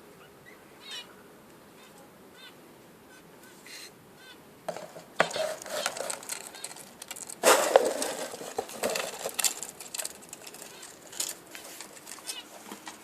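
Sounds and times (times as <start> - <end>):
budgerigars chattering: 0.4 - 1.1.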